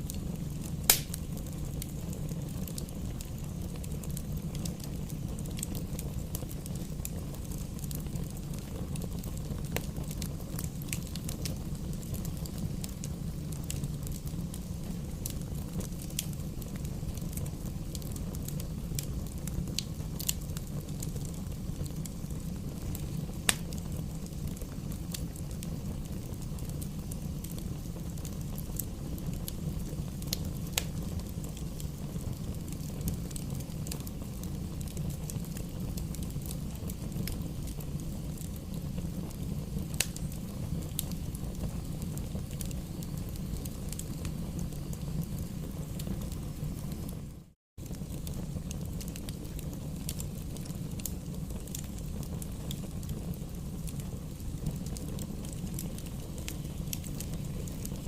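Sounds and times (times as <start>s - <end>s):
bonfire crackling and popping: 0.0s - 58.0s
low fire rumble: 0.0s - 58.0s.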